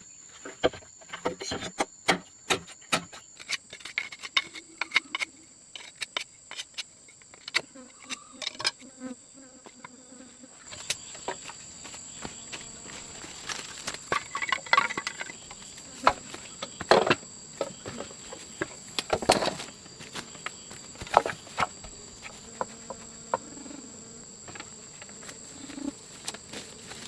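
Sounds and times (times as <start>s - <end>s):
crickets trilling: 0.0s - 27.0s
knocks and rustles of handling: 10.7s - 23.6s, 24.2s - 27.0s.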